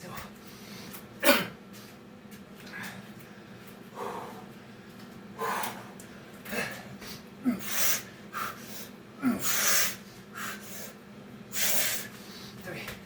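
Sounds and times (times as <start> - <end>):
man breathing hard: 2.6 - 12.7.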